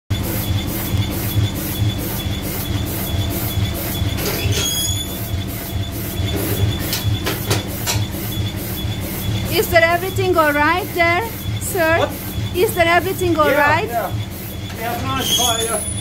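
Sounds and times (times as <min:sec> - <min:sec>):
steady hum: 0:00.1 - 0:15.2
steam engine beating: 0:00.1 - 0:16.0
rising squeak: 0:04.0 - 0:05.5, 0:14.8 - 0:16.0.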